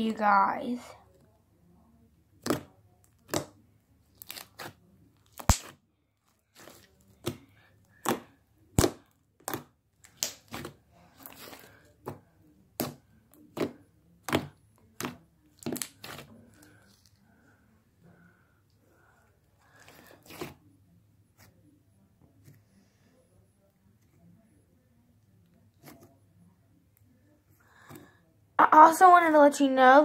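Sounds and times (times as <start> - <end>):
slime popping and clicking: 9.5 - 10.7.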